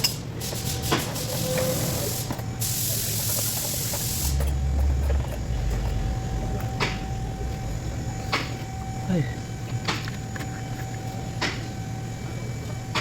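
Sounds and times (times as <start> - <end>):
hissing spray: 0.5 - 4.4.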